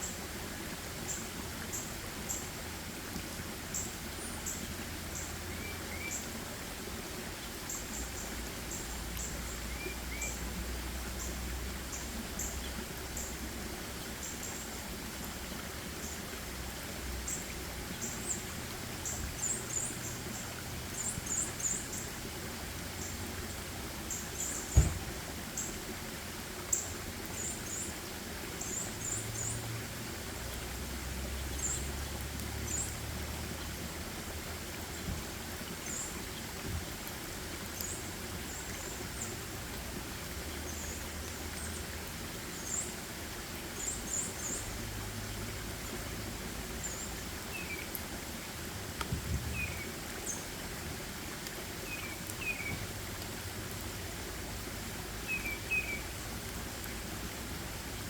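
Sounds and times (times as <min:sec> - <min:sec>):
steady hiss: 0:24.0 - 0:27.9
small birds chirping: 0:51.8 - 0:52.9, 0:55.2 - 0:56.2.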